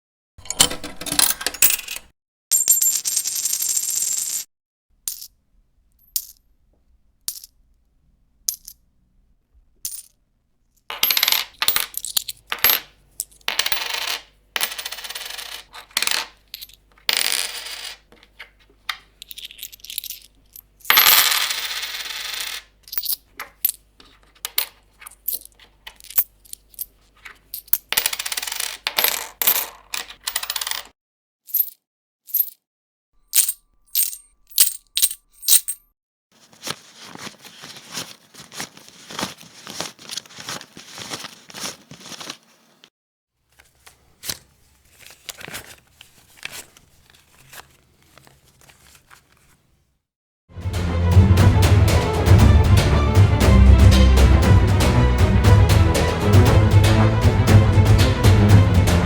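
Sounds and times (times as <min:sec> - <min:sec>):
coins clinking and jingling: 0:00.4 - 0:04.5, 0:05.1 - 0:05.3, 0:06.0 - 0:06.4, 0:07.3 - 0:07.5, 0:09.8 - 0:10.1, 0:10.9 - 0:30.9, 0:31.5 - 0:32.6, 0:33.3 - 0:35.8.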